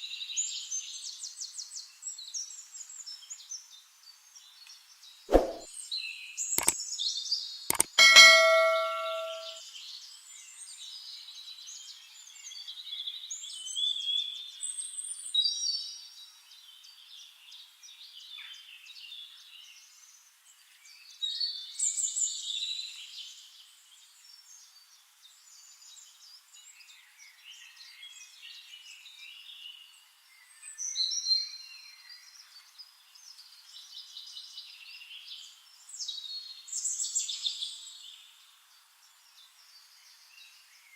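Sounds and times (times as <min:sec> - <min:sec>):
metallic clang ringing like bell: 0:07.7 - 0:09.6.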